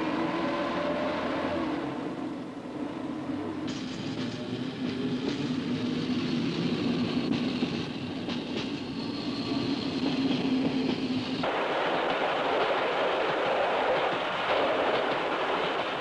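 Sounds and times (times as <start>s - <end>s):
freight train rolling past: 0.0s - 16.0s.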